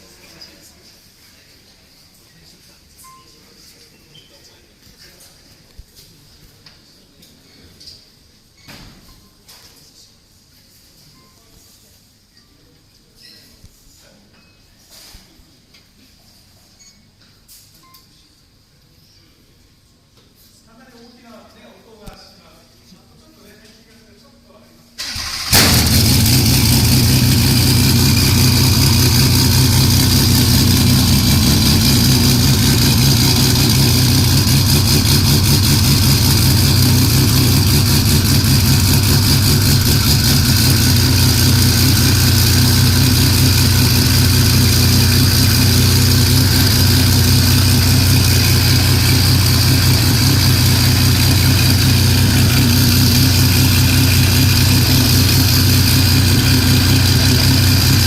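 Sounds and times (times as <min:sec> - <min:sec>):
race car engine idling: 0:25.1 - 0:58.0.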